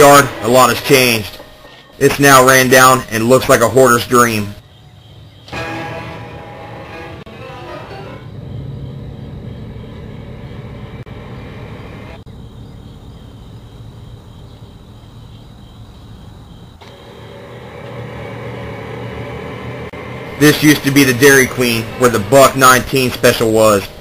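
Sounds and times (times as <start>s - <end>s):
car engine and road rumble: 8.3s - 13.4s.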